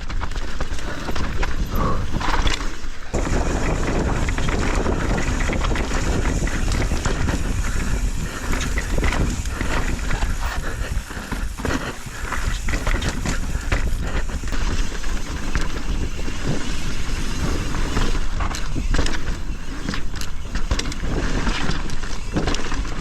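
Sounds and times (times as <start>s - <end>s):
bike rattling over bumps: 0.0s - 23.0s
tyres on dirt: 0.0s - 23.0s
wind buffeting microphone: 0.0s - 23.0s.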